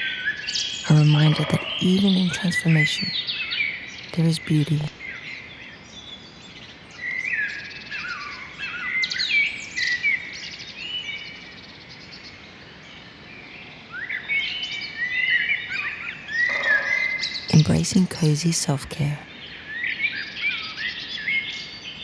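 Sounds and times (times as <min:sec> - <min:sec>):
songbirds chirping and singing: 0:00.0 - 0:06.4.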